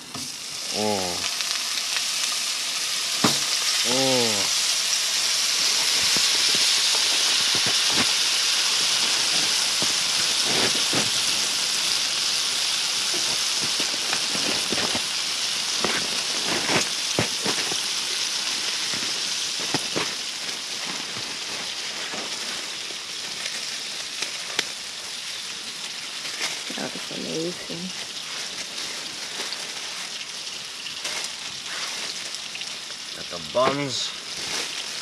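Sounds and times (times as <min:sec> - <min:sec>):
burger patties sizzling in oil: 0:00.0 - 0:35.0.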